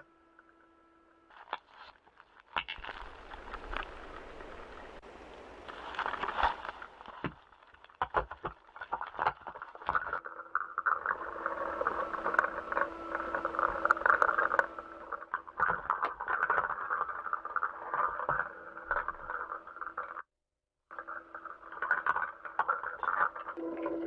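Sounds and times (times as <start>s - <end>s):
crackling radio static: 0.0s - 7.4s, 10.8s - 20.3s
steady low hum: 11.0s - 16.4s.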